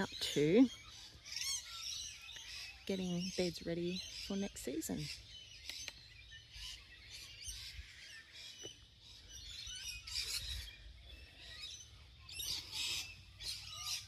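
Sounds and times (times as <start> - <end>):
birds chirping and calling: 0.0 - 14.0.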